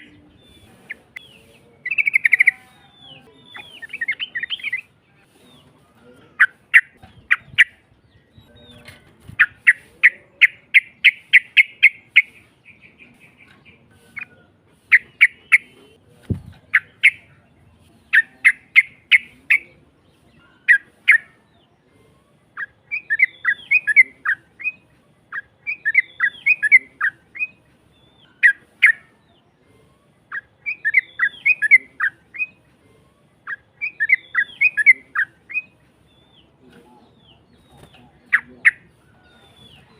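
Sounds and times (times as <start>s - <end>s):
bird singing harsh chirps: 0.0s - 5.7s, 22.5s - 29.5s, 30.2s - 32.7s, 33.4s - 39.9s.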